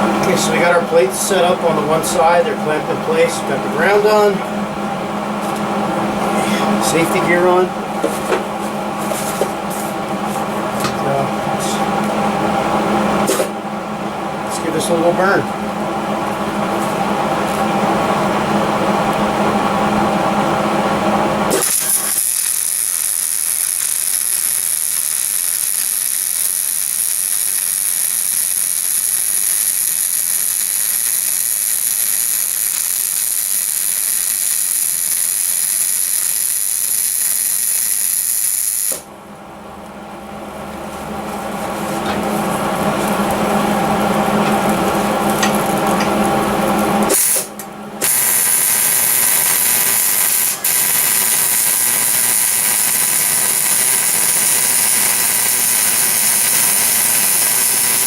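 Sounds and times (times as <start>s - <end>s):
machine humming: 0.0s - 58.0s
welding hiss: 21.5s - 39.0s, 47.1s - 58.0s.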